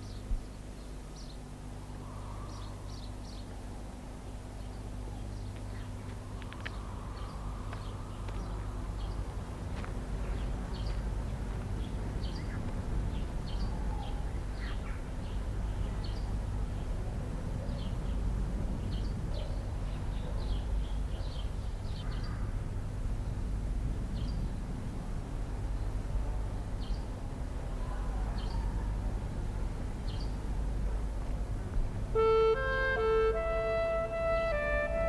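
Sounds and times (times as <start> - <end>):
small birds chirping: 0.0 - 3.6, 4.6 - 9.3, 10.2 - 17.0, 17.6 - 22.6, 27.8 - 29.4, 30.0 - 30.5
steady low hum: 0.0 - 35.0.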